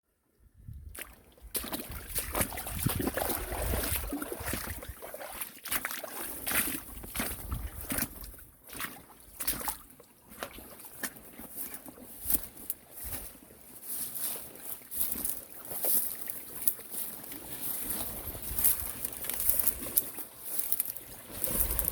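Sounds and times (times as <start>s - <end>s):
stream water sloshing: 0.8s - 21.9s
rustles: 17.0s - 21.9s.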